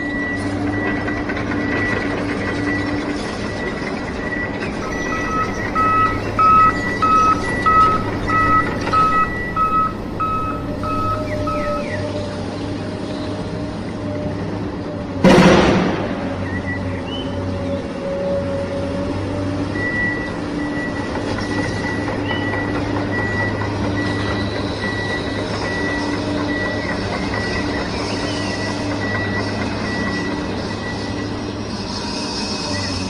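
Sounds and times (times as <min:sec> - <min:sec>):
high reversing beep: 0:00.1 - 0:12.1
vehicle engine running: 0:00.6 - 0:12.0.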